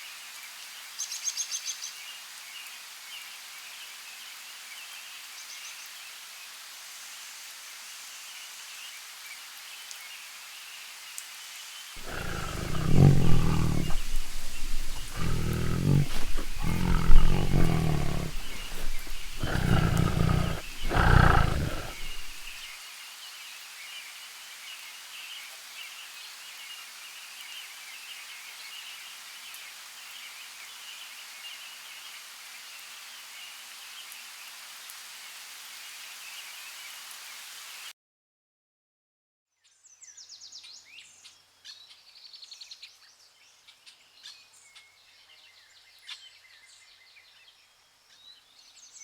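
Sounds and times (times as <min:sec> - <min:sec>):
big cat roaring: 0:12.0 - 0:22.6.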